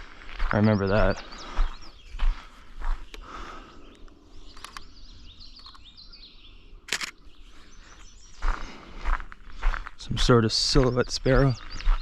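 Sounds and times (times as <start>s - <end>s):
songbirds singing: 0.0s - 12.0s
sharp clicks: 3.9s - 4.9s, 6.8s - 7.2s.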